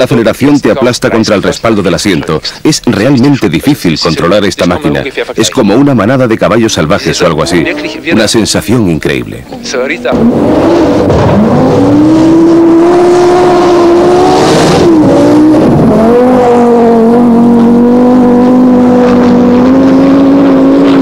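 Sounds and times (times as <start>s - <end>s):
rally car engine at high revs: 10.0s - 21.0s.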